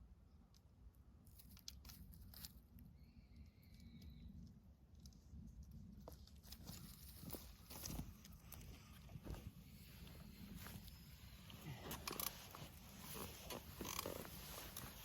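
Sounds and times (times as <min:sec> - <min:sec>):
thin whistling tone: 0:02.9 - 0:04.4.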